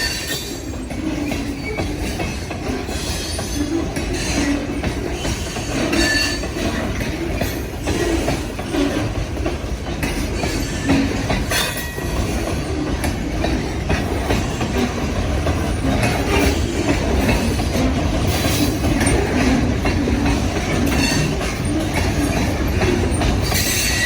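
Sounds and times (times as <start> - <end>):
high wheel squeals: 0.0 - 6.6, 20.6 - 24.0
train wheels rumbling on rail: 0.0 - 24.0.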